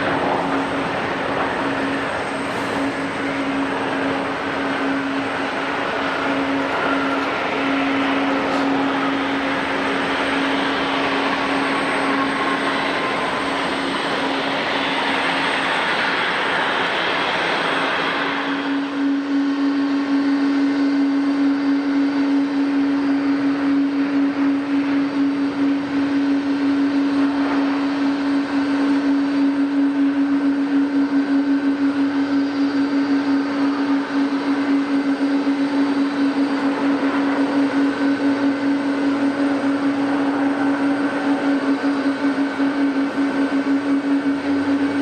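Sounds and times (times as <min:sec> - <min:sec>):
loud jet rushing noise: 0:00.0 - 0:18.8, 0:35.0 - 0:45.0
jet engine hum: 0:00.0 - 0:45.0.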